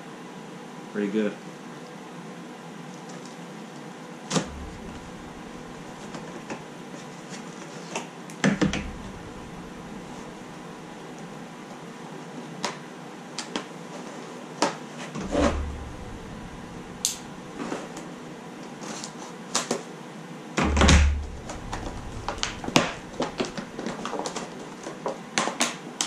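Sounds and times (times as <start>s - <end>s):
heavy thumps: 4.4s - 6.8s, 8.4s - 11.4s, 15.2s - 18.3s, 20.6s - 24.6s.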